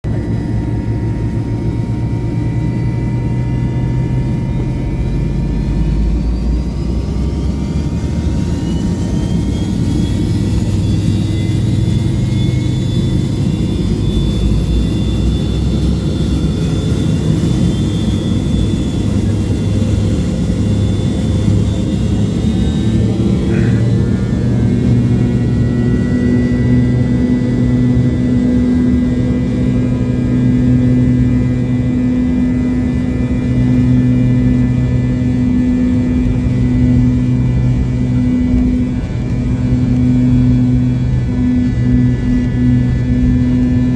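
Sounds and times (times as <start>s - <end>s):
high engine whine: 0.0s - 43.9s
jet engines low rumble: 0.0s - 43.9s.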